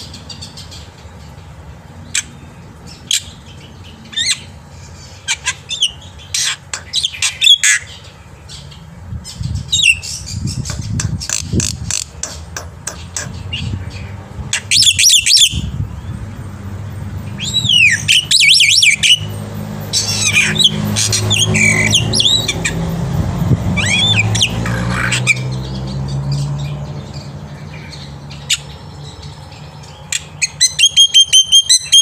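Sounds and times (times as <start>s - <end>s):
bird harsh squawking: 4.1s - 8.0s, 14.5s - 15.7s, 17.4s - 19.3s, 19.9s - 22.8s, 23.8s - 25.5s, 30.1s - 32.0s
bird clicking and chattering: 6.4s - 7.8s, 10.5s - 13.6s
bird looping whistles: 14.6s - 15.7s, 17.4s - 19.3s, 30.4s - 32.0s.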